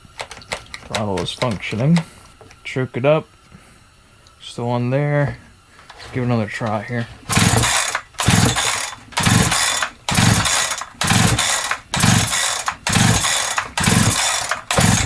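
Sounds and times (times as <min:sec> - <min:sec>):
chainsaw recoil starter pulls: 0:07.3 - 0:15.0.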